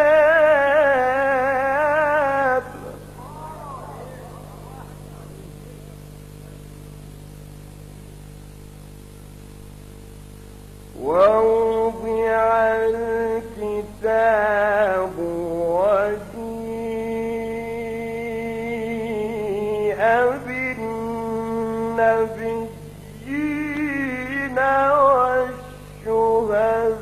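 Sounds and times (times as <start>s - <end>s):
man reciting melodically: 0.0s - 4.5s, 11.0s - 27.0s
faint steady hum: 0.0s - 27.0s.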